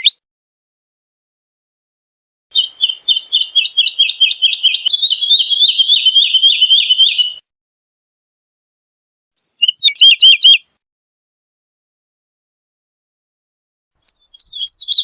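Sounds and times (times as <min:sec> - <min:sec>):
bird singing falling notes: 0:02.6 - 0:07.4, 0:14.0 - 0:15.0.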